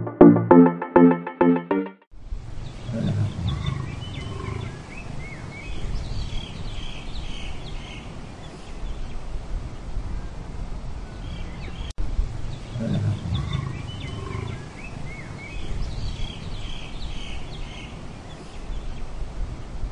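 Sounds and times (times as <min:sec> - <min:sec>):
loud low sound: 0:00.0 - 0:01.8
electronic music intro: 0:00.0 - 0:02.1.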